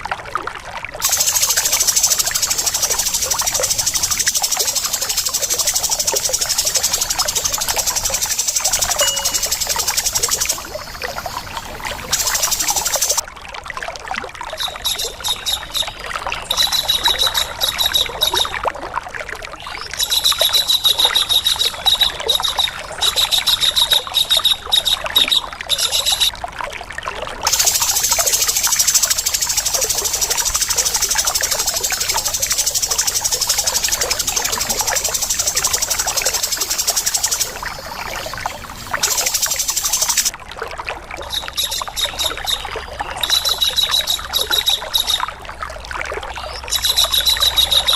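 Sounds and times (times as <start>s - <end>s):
trickle of running water: 0.0s - 47.9s
bird buzzing rattle: 1.0s - 13.2s, 27.5s - 40.3s
harsh bird calls: 1.0s - 13.2s, 27.5s - 40.3s.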